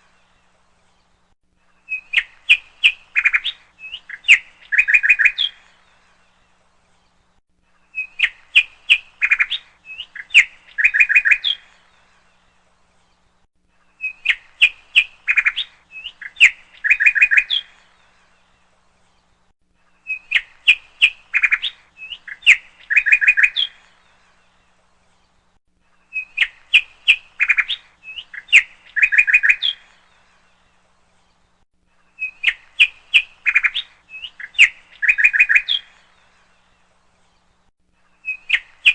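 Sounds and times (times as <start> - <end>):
bird chirping and trilling: 1.8 - 6.1, 7.8 - 12.5, 13.9 - 18.4, 20.0 - 24.4, 26.0 - 30.6, 32.1 - 36.6, 38.1 - 38.9.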